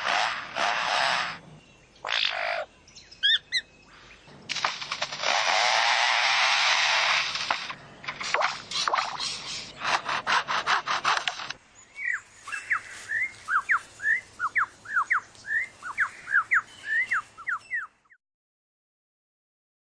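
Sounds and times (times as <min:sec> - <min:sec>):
bird mimicking a chainsaw: 0:00.0 - 0:01.4, 0:02.0 - 0:03.6, 0:04.5 - 0:11.6
bird whistling sweeping notes: 0:12.0 - 0:17.9.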